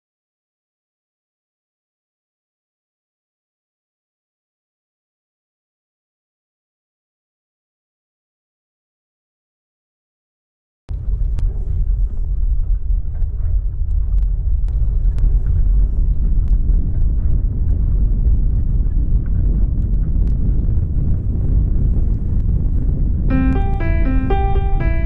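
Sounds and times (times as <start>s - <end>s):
loud low rumble: 10.9s - 25.0s.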